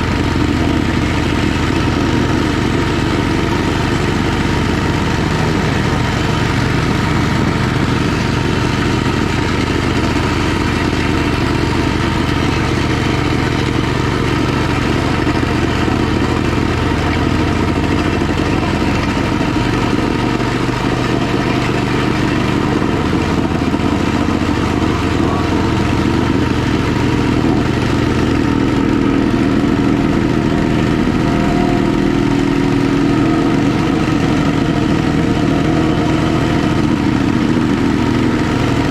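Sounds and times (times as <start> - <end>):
plate compactor engine running: 0.0 - 38.9
vibrating plate tamping slag: 0.0 - 38.9.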